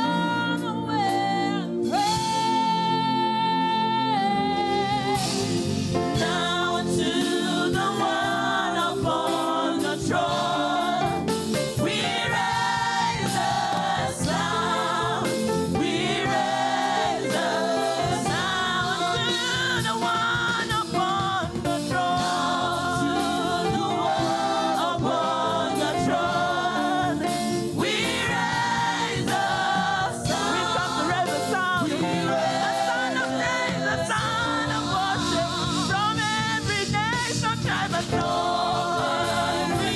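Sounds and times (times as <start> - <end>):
choir singing gospel song: 0.0 - 39.9
instrumental accompaniment: 4.2 - 39.9.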